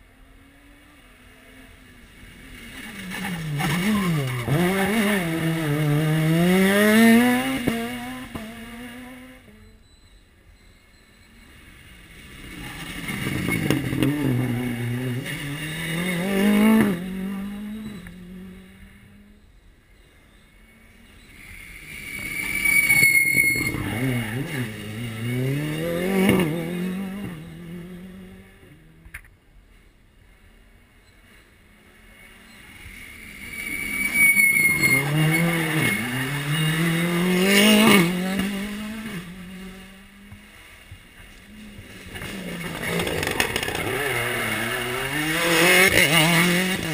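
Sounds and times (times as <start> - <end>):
rally car engine revving past: 2.8 - 9.6, 12.5 - 19.1, 23.5 - 29.0, 34.6 - 40.6, 41.4 - 46.9.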